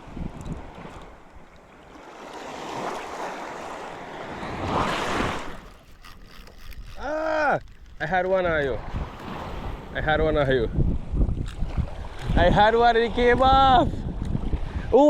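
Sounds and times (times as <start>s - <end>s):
surf washing against rocks: 1.8s - 13.8s.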